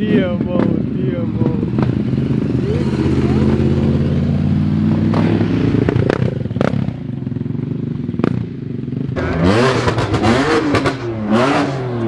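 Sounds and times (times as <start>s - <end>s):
exhaust cracks: 0.0s - 7.1s
car engine revving: 1.7s - 7.0s, 9.2s - 12.0s.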